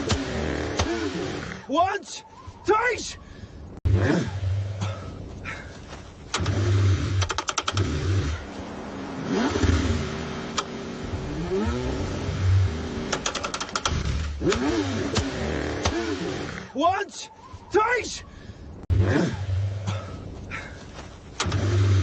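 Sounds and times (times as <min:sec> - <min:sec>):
car engine cranking: 0:06.2 - 0:08.6, 0:09.2 - 0:16.7, 0:21.3 - 0:22.0
rapid starter clicking: 0:06.3 - 0:08.2, 0:13.1 - 0:16.0, 0:21.4 - 0:22.0.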